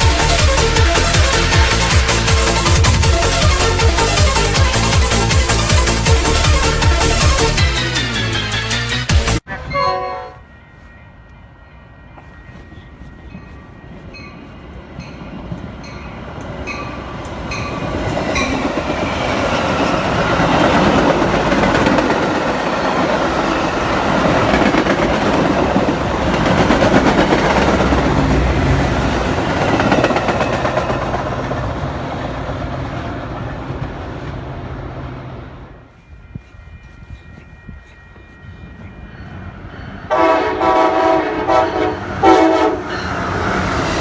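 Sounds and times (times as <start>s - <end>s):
train wheels clacking on rails: 12.2s - 34.7s.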